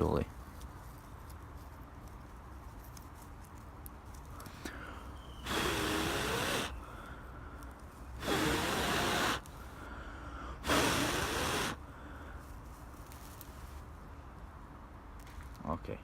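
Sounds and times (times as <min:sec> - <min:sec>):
person blowing on tinder: 0:05.4 - 0:06.9, 0:08.2 - 0:09.5, 0:10.6 - 0:11.8.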